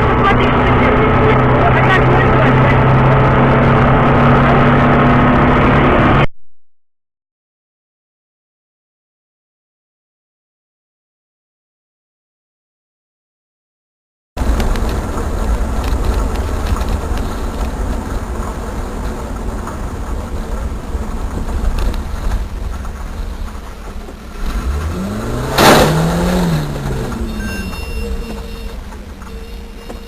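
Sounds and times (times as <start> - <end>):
vehicle engine and road rumble: 0.0 - 6.3, 14.4 - 30.0
vehicle passing close: 14.4 - 30.0.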